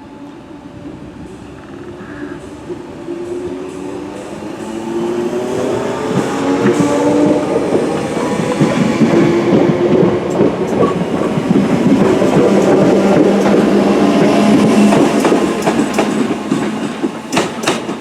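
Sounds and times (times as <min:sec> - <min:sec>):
wheels clattering on rails: 0:04.6 - 0:18.0.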